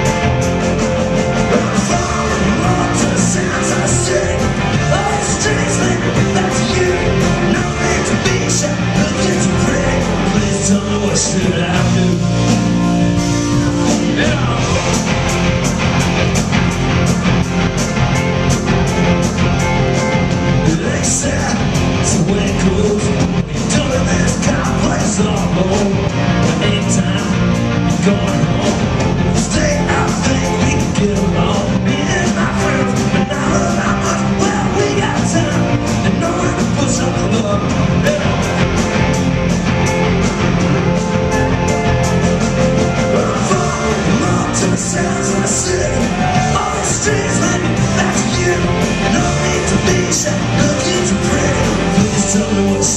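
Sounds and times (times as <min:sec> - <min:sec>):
bass: 0:00.0 - 0:52.9
drums keeping a steady beat: 0:00.0 - 0:52.9
electric guitar: 0:00.0 - 0:52.9
person singing: 0:01.4 - 0:12.8, 0:13.8 - 0:15.0, 0:20.5 - 0:38.8, 0:42.9 - 0:52.9.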